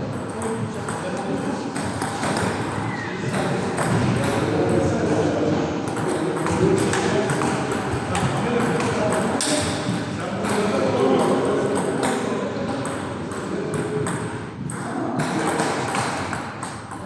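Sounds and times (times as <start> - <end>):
murmur of voices: 0.0 - 17.0
table tennis balls clicking: 5.9 - 17.0.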